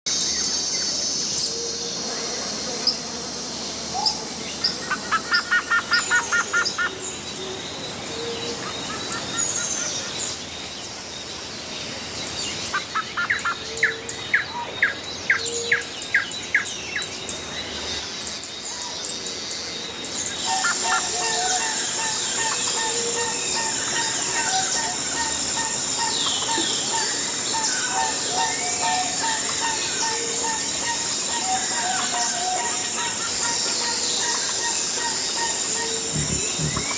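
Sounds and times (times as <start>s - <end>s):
background hiss: 0.1s - 36.9s
birds calling and chirping: 0.1s - 36.9s
bird rapid repeated notes: 36.1s - 36.9s.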